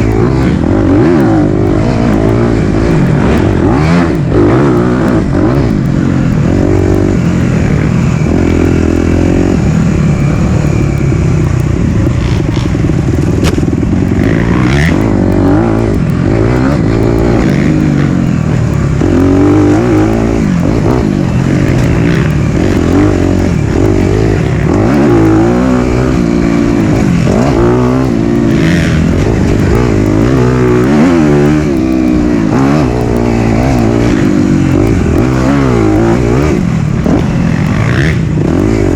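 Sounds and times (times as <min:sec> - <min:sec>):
dirt bike engine revving: 0:00.0 - 0:38.9
sharp knock: 0:13.4 - 0:13.7.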